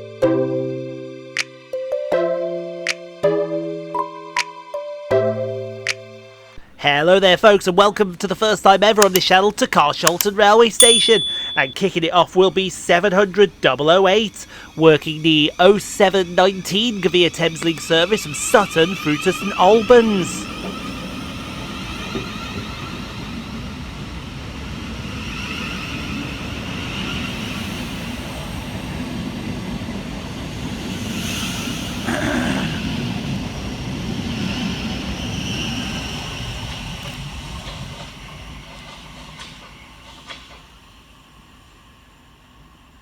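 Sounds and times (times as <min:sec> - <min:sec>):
train wheels rumbling on rails: 0:11.8 - 0:43.0
electric traction whine: 0:12.6 - 0:32.0.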